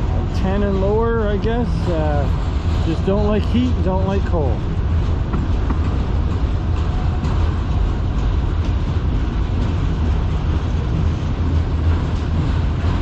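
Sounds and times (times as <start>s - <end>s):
freight train rumbling past: 0.0s - 13.0s
wheels clicking on rails: 0.0s - 13.0s.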